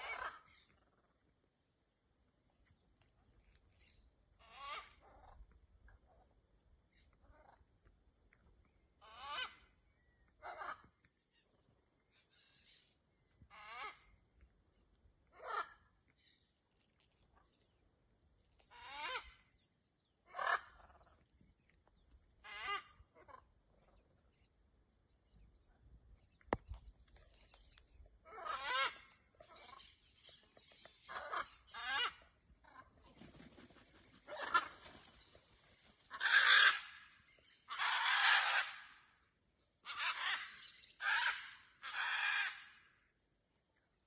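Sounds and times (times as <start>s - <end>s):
macaws squawking: 28.3s - 29.8s, 34.3s - 34.9s, 36.1s - 37.1s.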